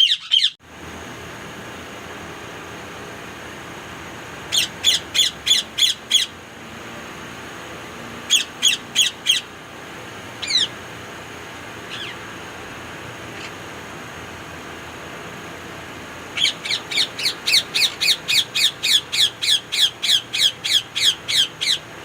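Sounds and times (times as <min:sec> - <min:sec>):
parakeet screeching: 0:00.0 - 0:00.6, 0:04.5 - 0:06.4, 0:08.3 - 0:09.5, 0:10.4 - 0:10.8, 0:11.9 - 0:12.3, 0:13.3 - 0:13.6, 0:16.4 - 0:21.9.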